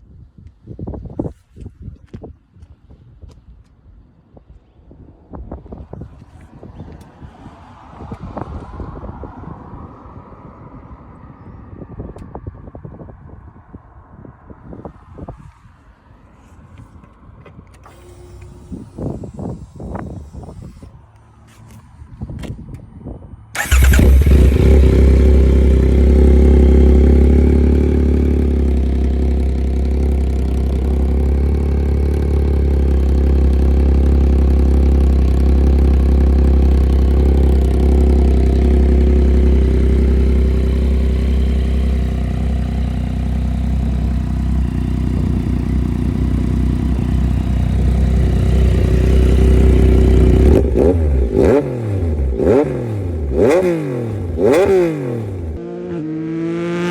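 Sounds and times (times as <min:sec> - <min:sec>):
motorcycle engine idling: 0:23.6 - 0:51.4.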